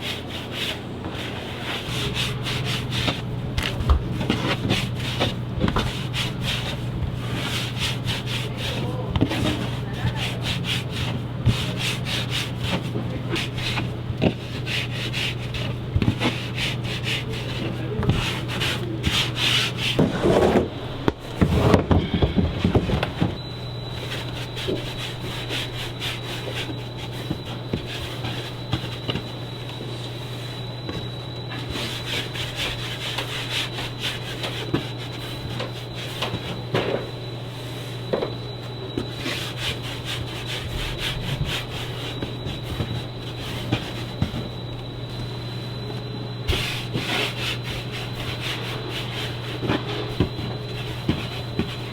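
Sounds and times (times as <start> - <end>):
hands rubbing dough on table: 0.0 - 51.9
low hum: 15.5 - 31.7.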